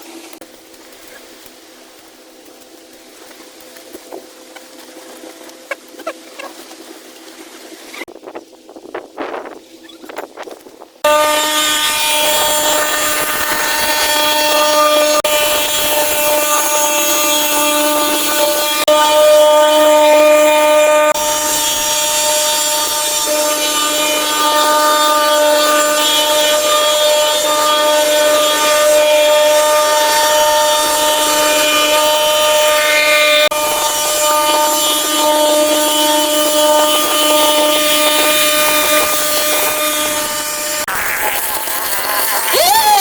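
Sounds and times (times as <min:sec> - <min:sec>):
small power tool whining: 0:11.0 - 0:43.0.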